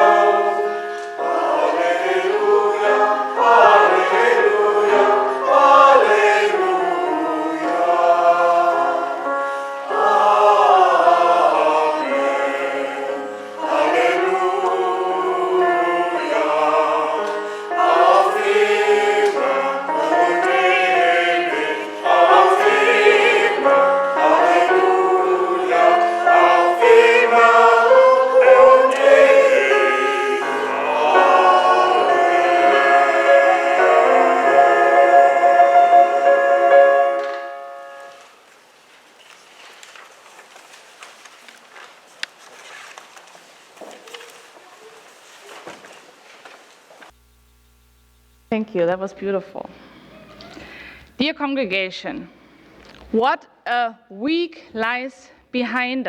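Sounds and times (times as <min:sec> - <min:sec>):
choir singing a hymn: 0:00.0 - 0:38.3
singers breathing: 0:09.4 - 0:09.8, 0:17.4 - 0:17.8, 0:49.7 - 0:51.2, 0:52.3 - 0:53.0.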